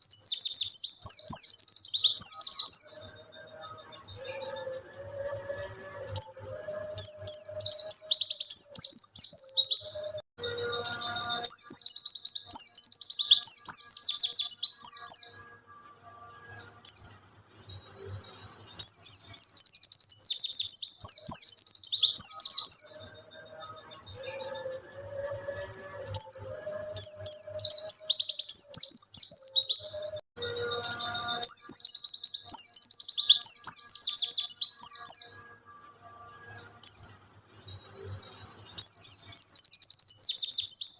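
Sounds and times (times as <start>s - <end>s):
bird high twittering song: 0.0s - 40.9s.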